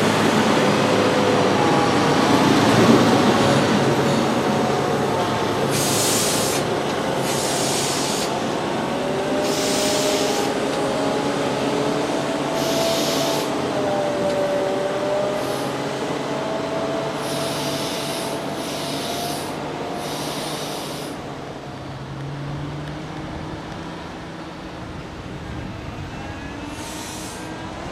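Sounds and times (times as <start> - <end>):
short hisses: 5.7 - 8.4, 9.4 - 10.5, 17.2 - 21.2.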